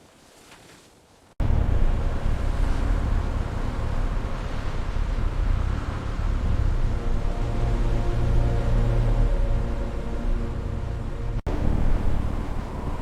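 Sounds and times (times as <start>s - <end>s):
faint wind noise: 1.3s - 13.0s
loud steady low rumble: 1.4s - 13.0s.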